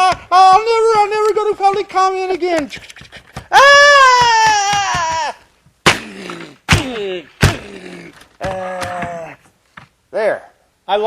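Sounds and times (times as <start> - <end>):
thuds: 0.0 - 10.0
short falling cries: 3.5 - 9.5.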